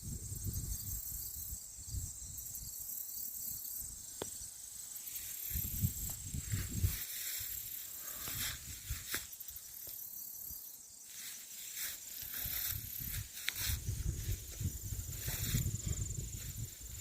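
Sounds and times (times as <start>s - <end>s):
insects droning: 0.0s - 17.0s
footsteps crunching through dry leaves: 5.1s - 9.4s, 11.0s - 17.0s.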